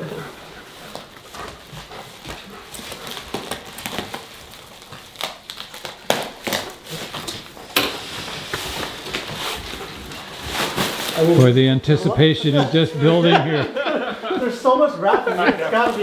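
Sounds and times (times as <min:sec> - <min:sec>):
plastic wrap crinkling and tearing: 0:00.4 - 0:11.8, 0:15.2 - 0:16.0.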